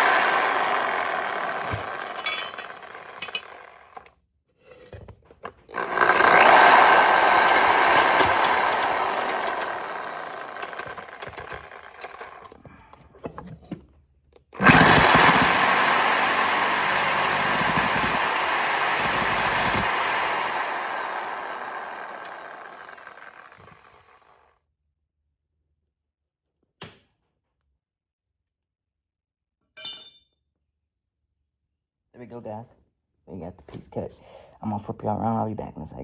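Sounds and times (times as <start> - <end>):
power tool cutting metal pipe: 0.0 - 4.0, 5.7 - 12.5, 14.6 - 24.3.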